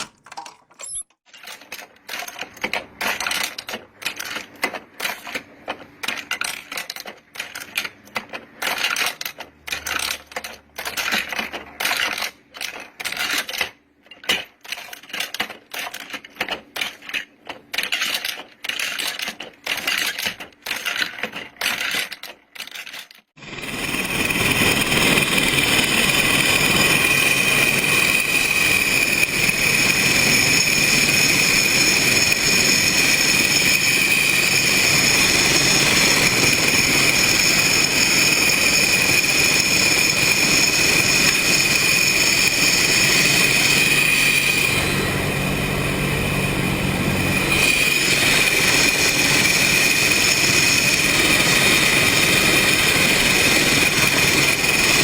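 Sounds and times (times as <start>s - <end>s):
belt-loading machine clacking: 47.3s - 55.0s.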